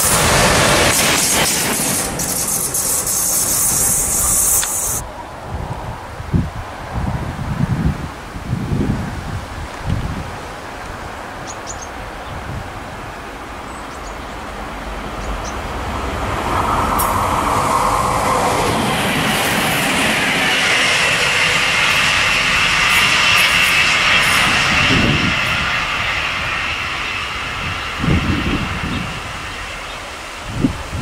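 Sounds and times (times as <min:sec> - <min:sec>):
high hiss: 0:00.0 - 0:05.1, 0:13.4 - 0:31.0
electric locomotives passing on rails: 0:00.0 - 0:31.0.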